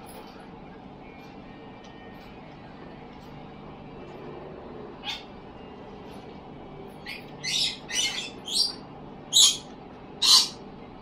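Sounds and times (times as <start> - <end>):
bird harsh scratchy calls: 7.0 - 10.6.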